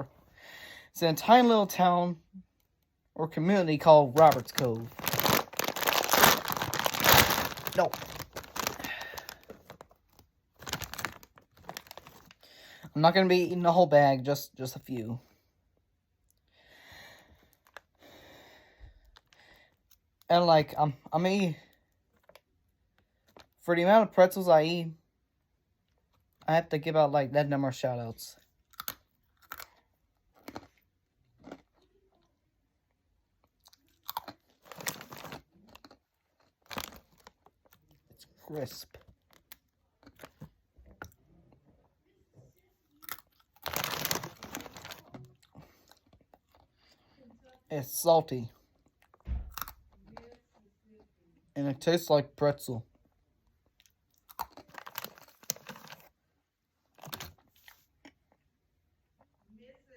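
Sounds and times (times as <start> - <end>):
pretzels crunching while chewed: 4.1 - 12.4, 28.6 - 32.3, 33.4 - 41.2, 42.9 - 47.0, 48.6 - 50.5, 53.6 - 56.2, 56.9 - 58.4.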